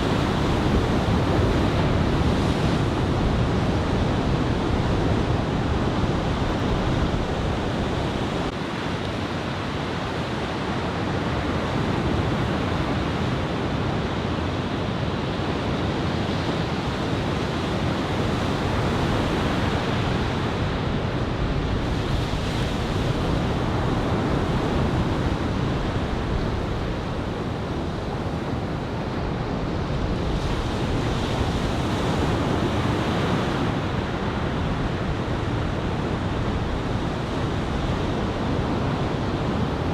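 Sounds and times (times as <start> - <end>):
ocean surf breaking: 0.0 - 8.5
wind buffeting microphone: 0.0 - 8.6.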